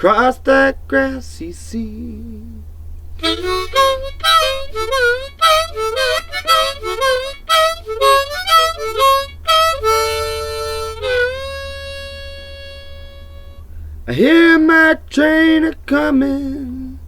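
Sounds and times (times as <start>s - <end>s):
harmonica playing: 3.2s - 13.9s.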